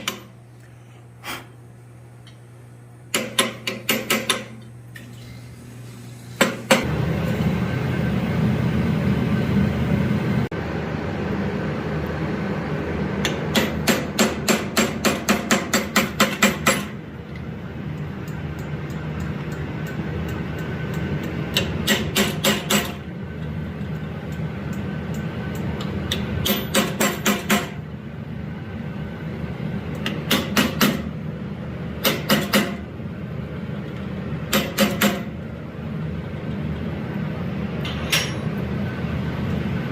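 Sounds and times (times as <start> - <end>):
hammer striking steel on anvil: 0.0 - 0.4, 3.1 - 4.6, 13.2 - 17.0, 18.3 - 23.0, 24.3 - 27.8, 30.0 - 31.1, 32.0 - 32.9, 34.5 - 35.4, 37.8 - 38.6.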